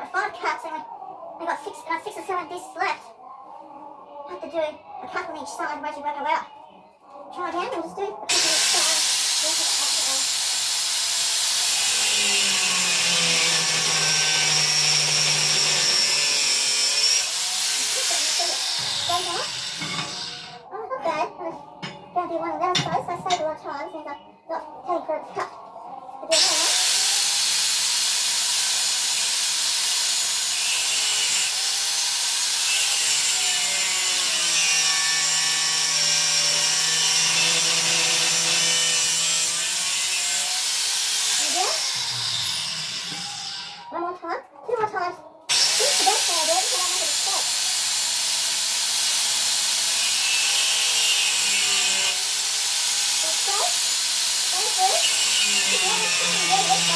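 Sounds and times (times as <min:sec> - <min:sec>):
power tool cutting steel: 0:08.3 - 0:20.6, 0:26.3 - 0:43.9, 0:45.5 - 0:56.9.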